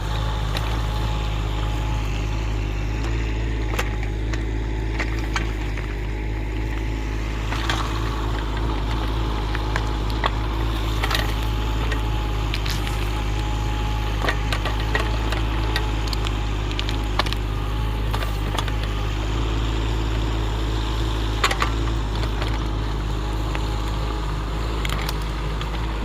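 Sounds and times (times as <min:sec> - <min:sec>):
excavator diesel engine running: 0:00.0 - 0:26.0
sharp cracks and knocks: 0:03.0 - 0:19.0, 0:21.4 - 0:26.0.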